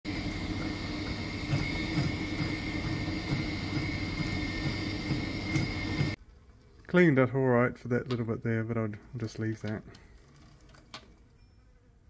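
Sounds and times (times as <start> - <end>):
power tool motor whining: 0.1 - 6.2.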